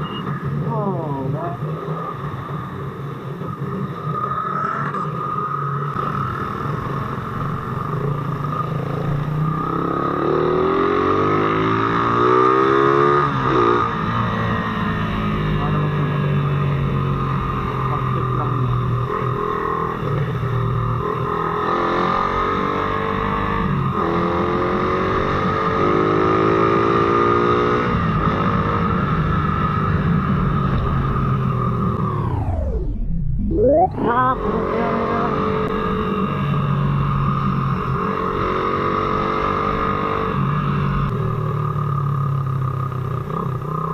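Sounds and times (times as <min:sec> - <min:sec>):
motorcycle engine accelerating: 0:00.0 - 0:43.9
road and wind noise: 0:00.0 - 0:43.9
motorcycle engine running: 0:05.5 - 0:11.8, 0:33.4 - 0:43.9.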